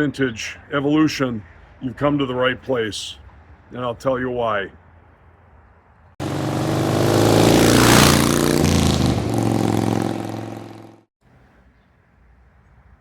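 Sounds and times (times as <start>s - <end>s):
motorcycle engine revving: 6.2s - 11.1s.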